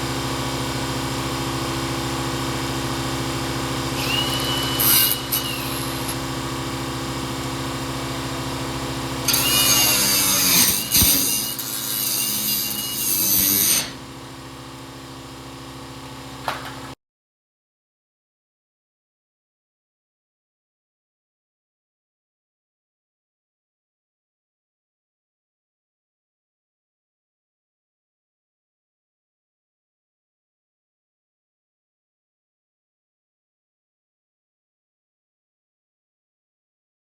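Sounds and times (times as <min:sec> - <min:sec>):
steady machine hum: 0:00.0 - 0:17.0
pneumatic tool cutting sheet metal: 0:03.8 - 0:06.5, 0:09.2 - 0:14.1.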